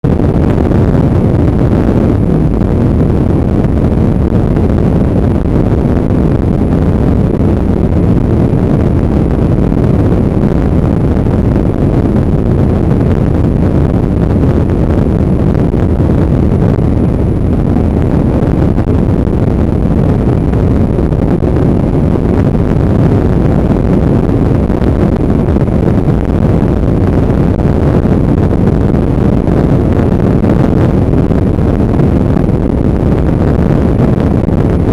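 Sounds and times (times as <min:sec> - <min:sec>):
wind rumble on microphone: 0:00.0 - 0:34.9.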